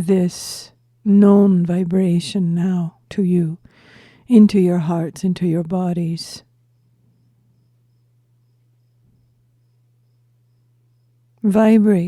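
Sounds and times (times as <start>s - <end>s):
low steady hum: 0.0s - 12.0s
insect chirping: 0.7s - 1.1s, 6.0s - 11.4s.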